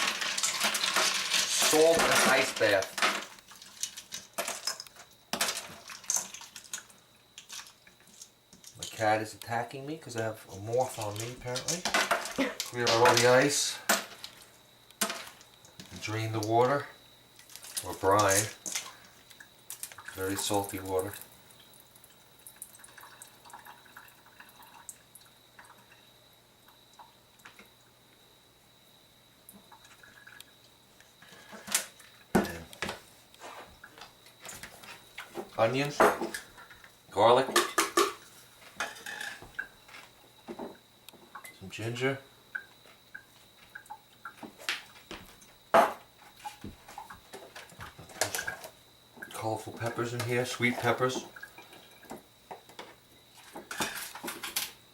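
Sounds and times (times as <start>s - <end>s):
brine dripping and splashing: 5.5s - 9.0s, 17.4s - 26.0s, 42.4s - 45.5s, 48.1s - 52.3s.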